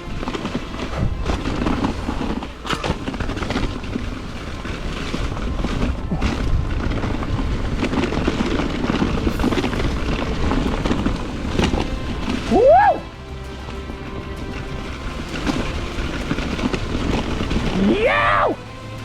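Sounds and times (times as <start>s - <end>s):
bike rattling and knocking: 0.0s - 17.8s
bike tyres on dirt: 0.0s - 19.0s
wind rumble on microphone: 0.0s - 19.0s.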